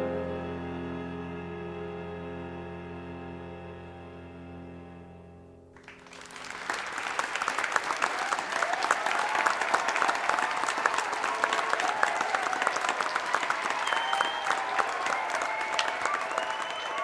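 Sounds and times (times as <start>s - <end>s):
crowd applauding: 5.8s - 17.0s.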